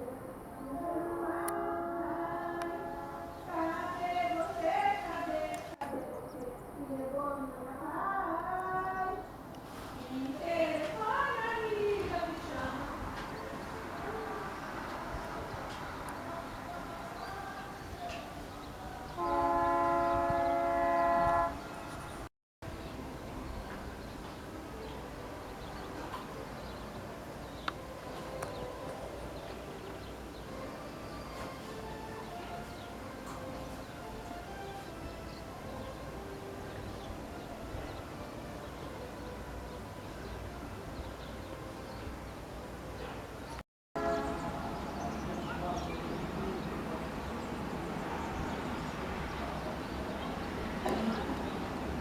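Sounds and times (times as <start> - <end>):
loud horn blast: 0.7 - 3.8, 19.1 - 22.8, 44.0 - 47.0.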